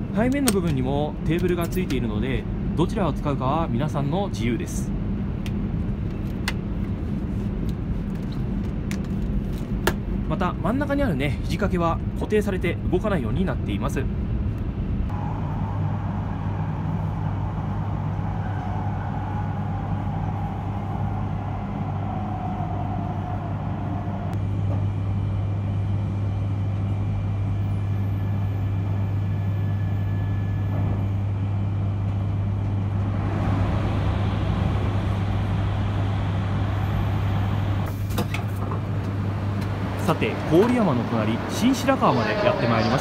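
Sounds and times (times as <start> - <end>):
train interior low hum: 0.0 - 43.0
falling whine: 15.1 - 38.0.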